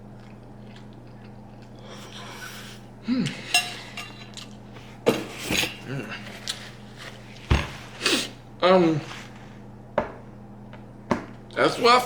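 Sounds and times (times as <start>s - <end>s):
cutlery clinking against a dish: 3.3s - 5.9s.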